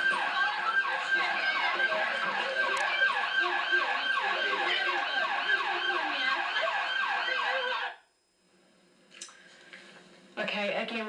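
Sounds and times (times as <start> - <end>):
emergency sirens sweeping: 0.0 - 8.0.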